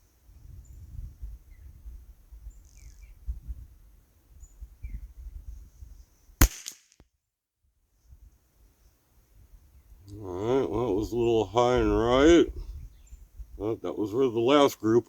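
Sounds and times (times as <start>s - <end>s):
faint bird chirps: 0.4s - 3.4s
rifle shot: 6.4s - 7.0s.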